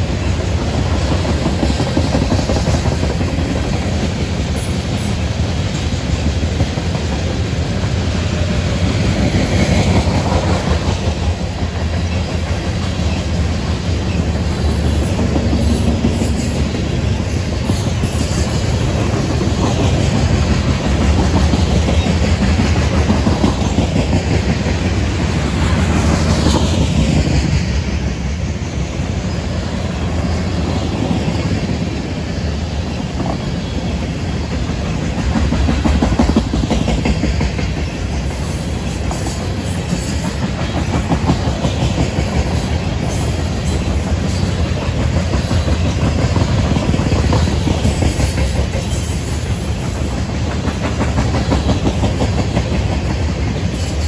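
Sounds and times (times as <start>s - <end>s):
freight train rumble: 0.0s - 54.0s
wheels clicking over rail joints: 29.7s - 54.0s.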